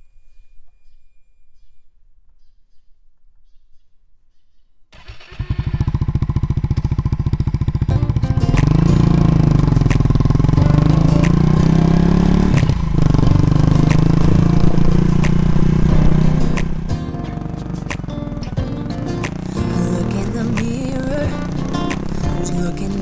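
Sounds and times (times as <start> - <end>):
motorcycle engine running: 5.0 - 23.0
background music with heavy bass: 7.9 - 23.0.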